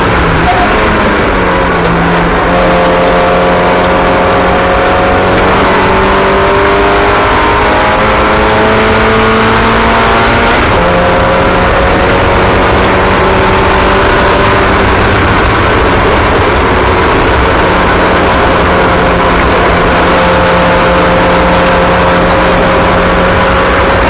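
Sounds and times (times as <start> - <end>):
racing car engines at high revs: 0.0 - 24.0.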